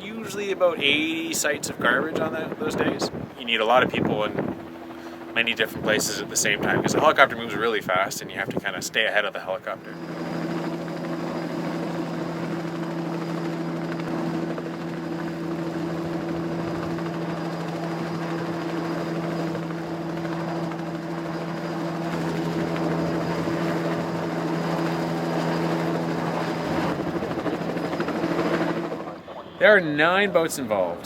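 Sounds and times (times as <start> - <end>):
helicopter engine drone: 0.0 - 31.0.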